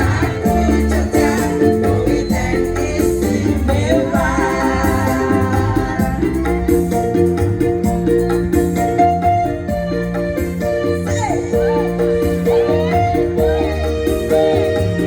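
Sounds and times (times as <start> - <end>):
choir singing sustained notes: 0.0 - 6.6
keyboard accompaniment: 0.0 - 15.0
shaker-like percussion beat: 0.0 - 15.0.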